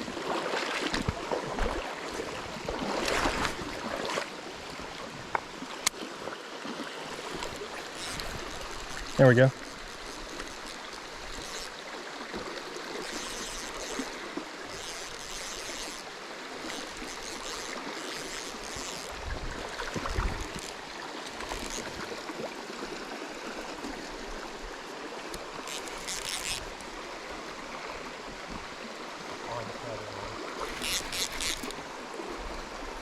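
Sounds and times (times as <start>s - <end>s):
water splashing: 0.0s - 4.4s, 5.6s - 24.0s, 29.5s - 32.1s
river water running: 0.0s - 33.0s.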